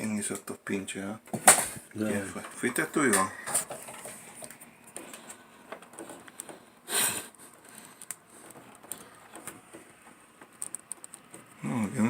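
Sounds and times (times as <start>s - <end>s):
small clicks and taps: 7.5s - 11.6s.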